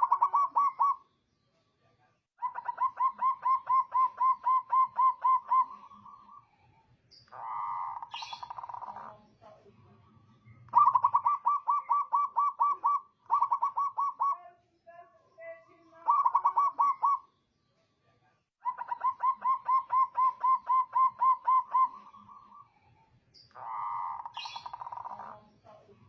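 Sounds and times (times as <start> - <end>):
dove cooing: 0.0 - 1.0, 2.4 - 6.4, 7.3 - 10.0, 10.7 - 14.5, 16.0 - 17.3, 18.6 - 22.7, 23.5 - 26.0.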